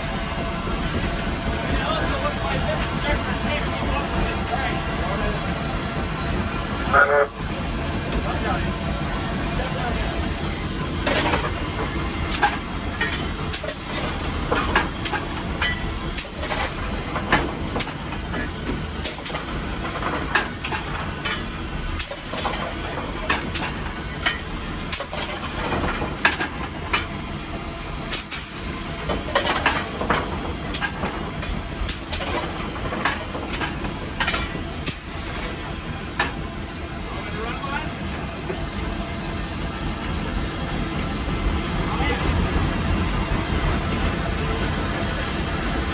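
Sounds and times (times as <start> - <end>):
locomotive running rumble: 0.0 - 45.9
steam hissing: 0.0 - 45.9
metal clanks and knocks: 29.1 - 31.1.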